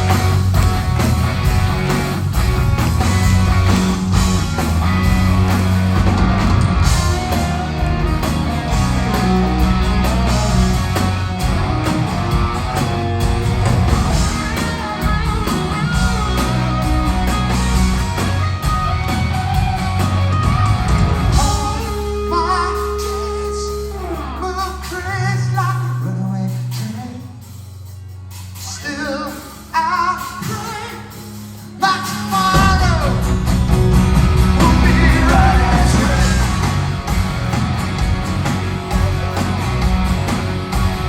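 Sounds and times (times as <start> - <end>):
rock band playing live: 0.0 - 41.0
person singing: 21.4 - 27.4, 34.6 - 36.8.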